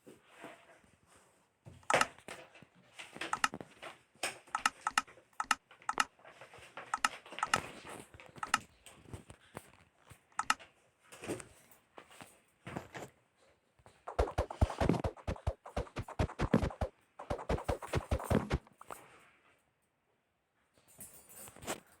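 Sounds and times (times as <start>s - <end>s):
irregular sharp clicks and knocks: 1.8s - 2.2s, 3.2s - 3.6s, 4.5s - 6.1s, 7.0s - 7.6s, 8.4s - 8.6s, 10.4s - 10.6s.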